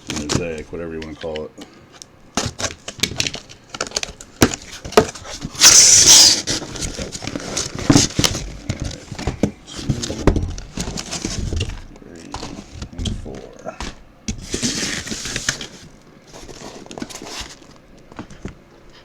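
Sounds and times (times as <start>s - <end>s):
scratchy rip: 5.6s - 6.6s.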